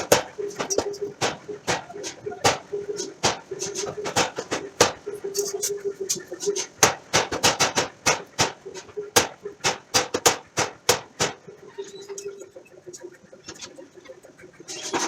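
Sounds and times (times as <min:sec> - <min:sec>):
hammer striking steel: 0:00.0 - 0:05.5.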